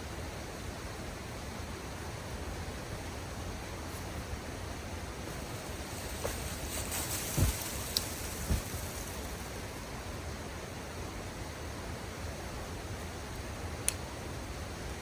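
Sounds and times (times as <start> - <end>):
dull thumps: 5.3 - 9.6.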